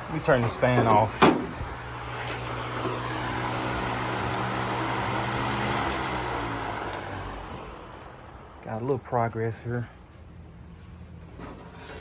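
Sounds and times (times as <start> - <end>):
electric fan running: 0.0 - 8.6.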